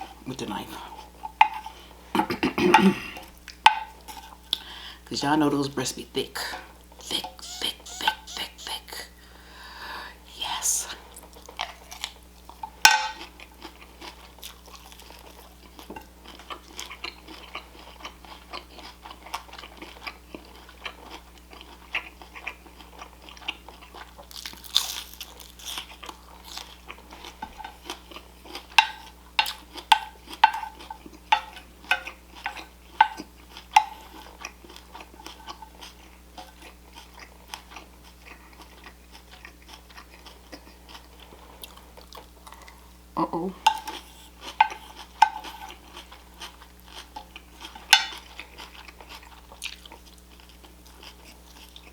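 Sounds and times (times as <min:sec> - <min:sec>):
person chewing and crunching food: 0:00.0 - 0:05.0, 0:06.4 - 0:51.9.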